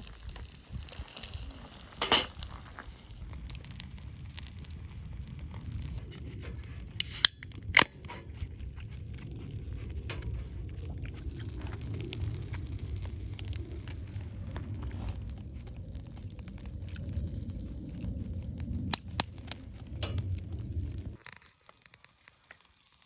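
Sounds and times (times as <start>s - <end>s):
campfire crackling: 0.0s - 23.0s
fire popping and snapping: 0.0s - 23.0s
low steady rumble: 1.7s - 21.2s.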